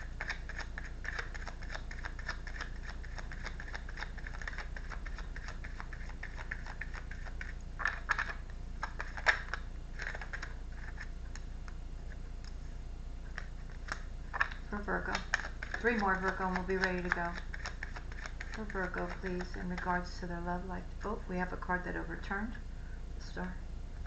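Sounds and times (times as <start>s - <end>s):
cards being shuffled: 0.0s - 11.5s, 13.3s - 20.1s.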